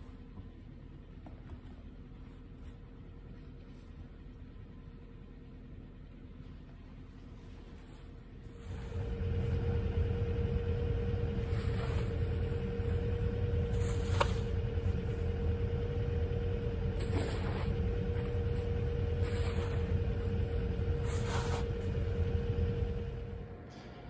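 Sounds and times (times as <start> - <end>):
car engine starting and idling: 8.5 - 24.0.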